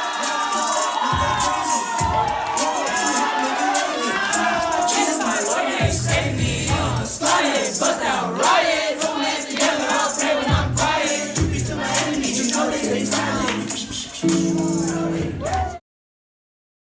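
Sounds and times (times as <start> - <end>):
voices singing: 0.0 - 15.8
bass line: 5.8 - 7.2, 10.5 - 15.5.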